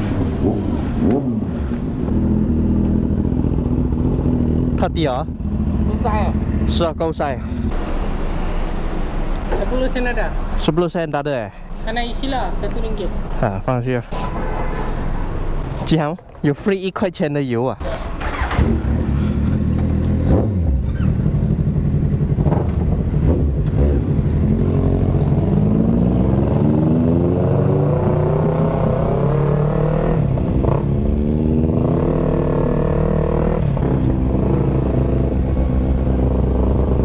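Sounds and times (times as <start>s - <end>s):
motorcycle engine accelerating: 0.0s - 7.0s, 18.2s - 37.0s.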